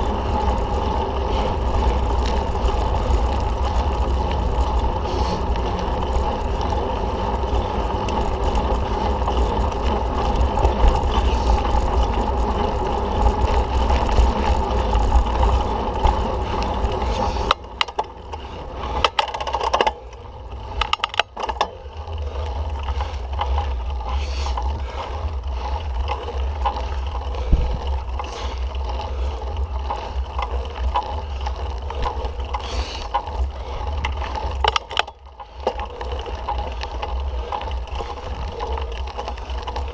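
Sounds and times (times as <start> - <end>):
bike rattling: 0.0 - 39.9
bike tyre noise: 0.0 - 39.9
wind rushing over microphone: 27.4 - 28.2.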